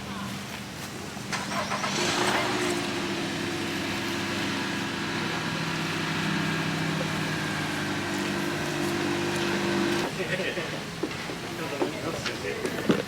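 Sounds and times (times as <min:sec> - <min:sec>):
engine humming steadily: 0:00.5 - 0:10.4.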